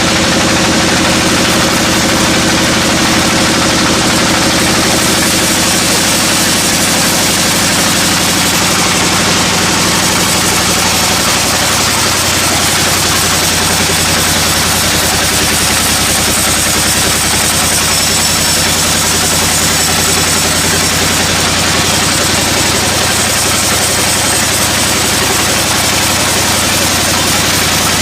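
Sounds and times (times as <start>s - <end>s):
sawmill machinery running: 0.0s - 28.0s.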